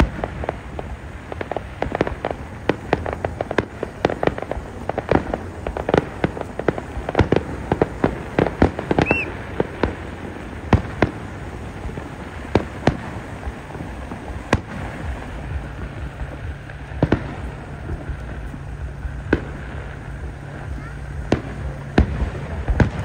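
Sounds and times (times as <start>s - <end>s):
fireworks bangs and crackles: 0.0s - 23.0s
fireworks booms: 0.0s - 23.0s
low steady hum: 0.0s - 23.0s
firework whistle: 1.5s - 11.7s.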